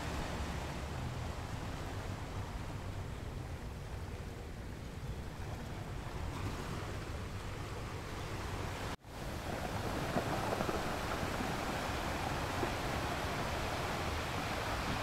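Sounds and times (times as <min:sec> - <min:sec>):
ocean surf breaking over rocks: 0:05.8 - 0:15.0.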